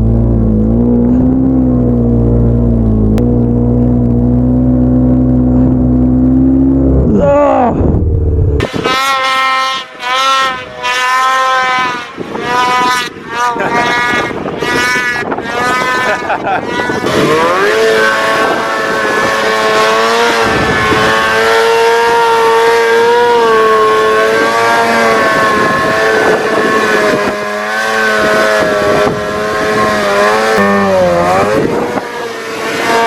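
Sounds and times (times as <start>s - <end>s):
snowmobile engine revving: 8.6s - 33.0s.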